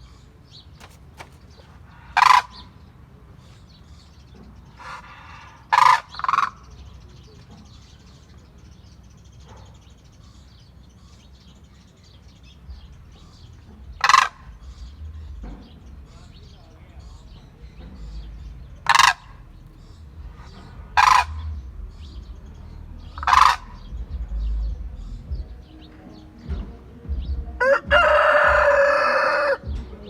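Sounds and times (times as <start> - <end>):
cranes giving harsh calls: 0.8 - 2.8, 4.8 - 6.6, 13.2 - 15.0, 18.8 - 24.0.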